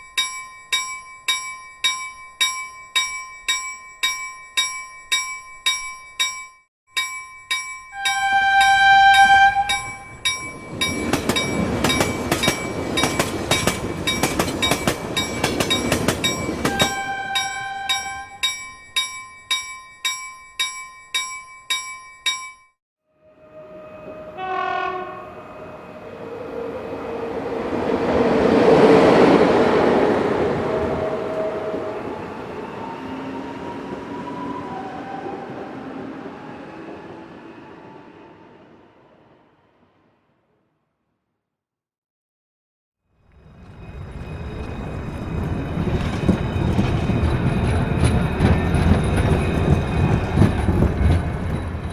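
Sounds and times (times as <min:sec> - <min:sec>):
level crossing bell ringing: 0:00.0 - 0:22.7
train horn: 0:08.0 - 0:10.1, 0:16.6 - 0:18.4, 0:23.2 - 0:27.6, 0:30.0 - 0:36.4
train rumbling past: 0:08.0 - 0:18.6, 0:23.2 - 0:40.4, 0:43.2 - 0:51.9.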